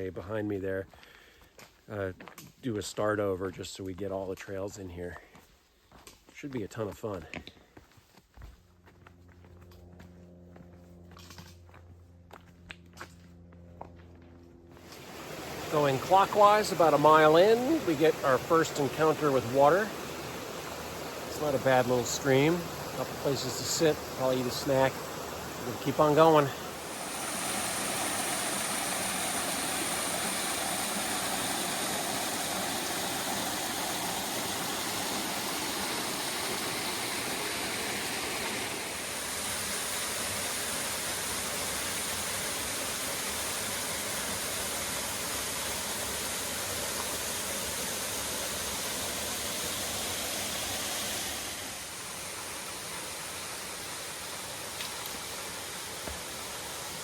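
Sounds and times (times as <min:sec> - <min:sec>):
rushing river water: 0:14.8 - 0:57.0.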